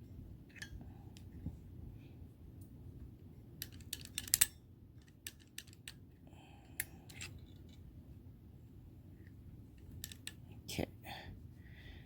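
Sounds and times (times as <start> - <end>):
small metallic clicks and taps: 3.6 - 6.0, 9.8 - 10.4.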